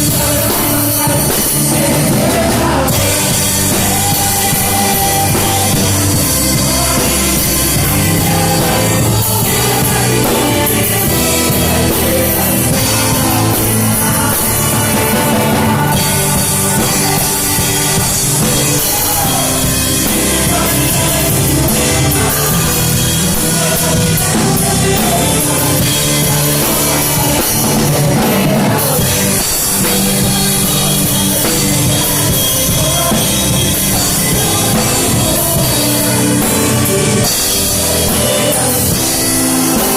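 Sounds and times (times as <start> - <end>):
band and orchestra playing: 0.0 - 39.9
drum kit beat: 0.0 - 39.9
voices singing: 0.0 - 39.9.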